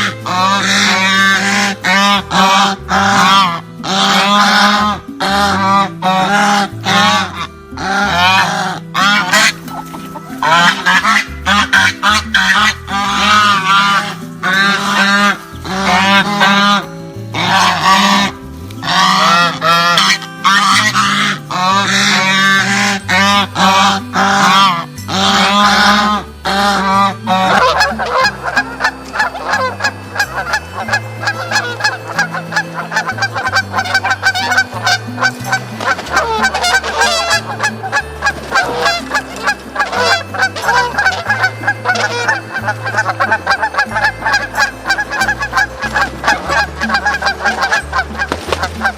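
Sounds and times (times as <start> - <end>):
geese honking: 0.0 - 48.9.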